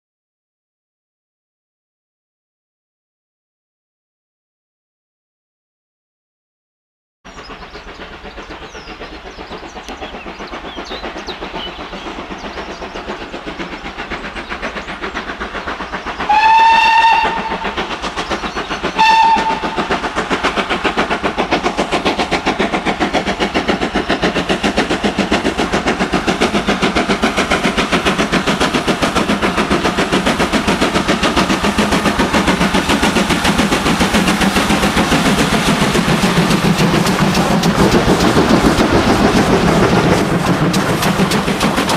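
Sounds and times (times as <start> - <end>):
steam engine exhaust beats: 7.3 - 41.9
steam whistle blasts: 16.3 - 17.7, 19.0 - 19.9.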